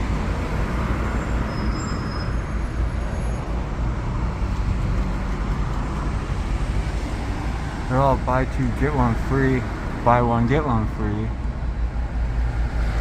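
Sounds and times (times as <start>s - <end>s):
street traffic rumble: 0.0s - 13.0s
faint high squeal: 1.2s - 3.5s.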